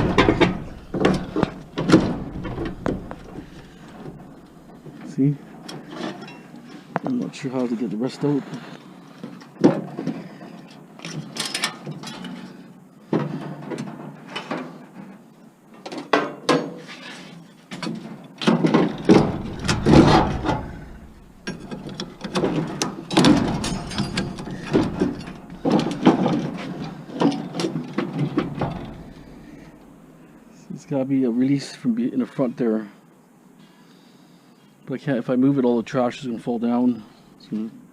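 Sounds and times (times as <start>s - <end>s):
metal parts clanking and scraping: 0.0s - 6.9s, 9.3s - 12.6s, 16.6s - 29.9s.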